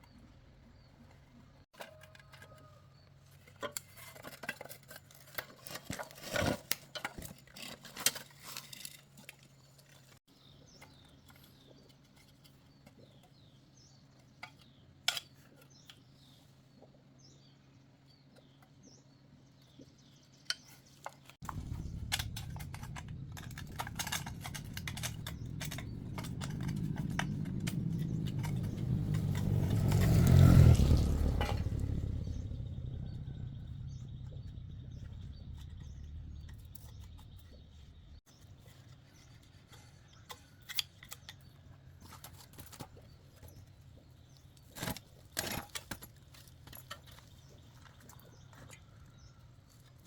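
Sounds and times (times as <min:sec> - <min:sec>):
low steady rumble: 0:21.4 - 0:38.2.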